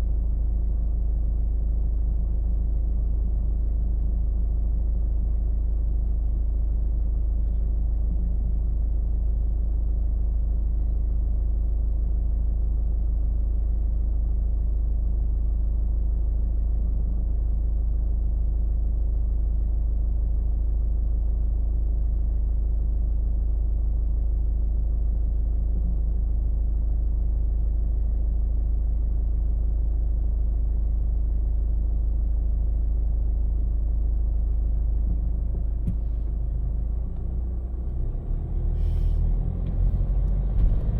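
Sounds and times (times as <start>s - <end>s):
car driving rumble: 33.1s - 40.9s.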